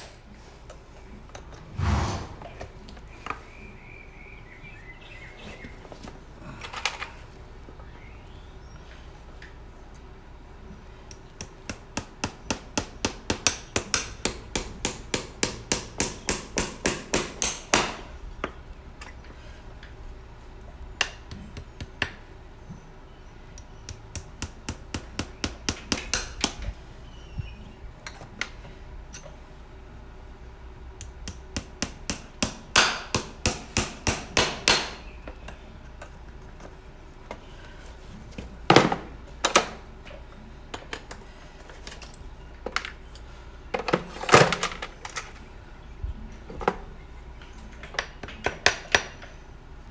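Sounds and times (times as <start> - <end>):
hammer tapping horseshoe nails: 11.1 - 18.6, 21.0 - 22.3, 23.6 - 26.8, 31.0 - 35.6, 47.8 - 49.4.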